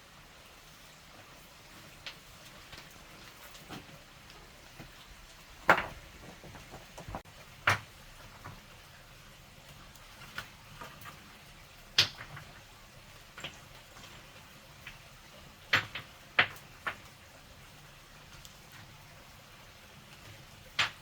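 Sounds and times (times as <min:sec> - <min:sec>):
hard objects knocking: 0:05.6 - 0:07.2.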